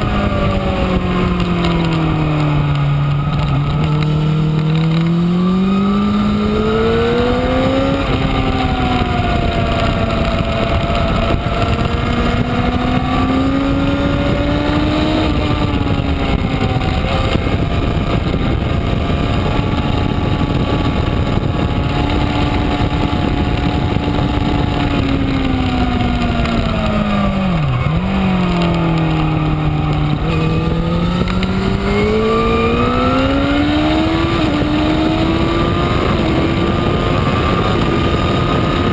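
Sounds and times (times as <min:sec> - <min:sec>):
motorcycle engine pulling: 0:00.0 - 0:38.9
steady rushing noise: 0:00.0 - 0:38.9.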